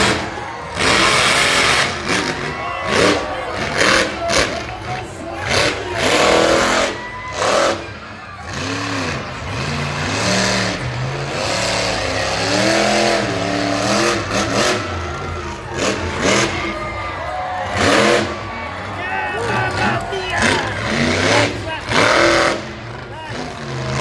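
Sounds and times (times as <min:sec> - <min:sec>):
truck engine revving: 0:00.0 - 0:24.0.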